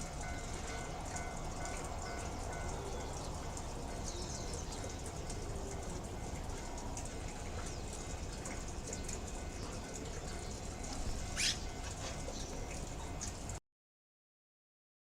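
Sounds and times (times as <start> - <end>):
sharp rising squeak: 11.4 - 11.6.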